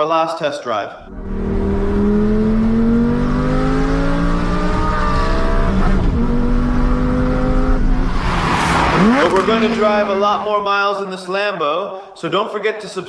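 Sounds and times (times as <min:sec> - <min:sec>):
car engine accelerating: 0:01.1 - 0:10.9.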